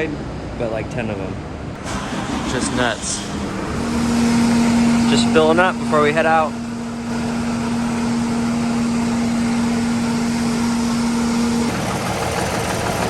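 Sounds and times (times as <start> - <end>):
fuel pump electric hum: 1.7 - 13.0.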